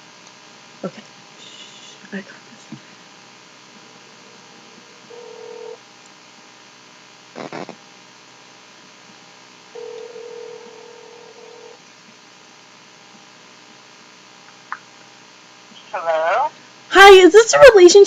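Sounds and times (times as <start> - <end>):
telephone ringback tone: 5.1 - 5.8, 9.8 - 11.8.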